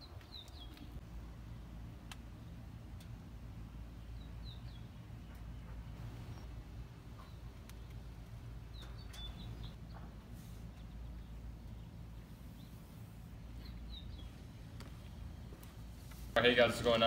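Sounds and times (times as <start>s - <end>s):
steady low rumble: 0.0s - 17.0s
high bird chirps: 8.6s - 10.1s.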